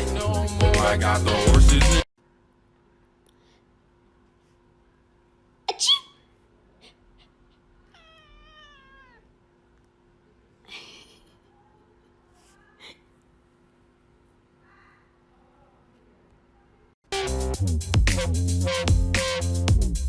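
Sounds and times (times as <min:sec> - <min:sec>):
cat meowing: 0:07.8 - 0:09.4.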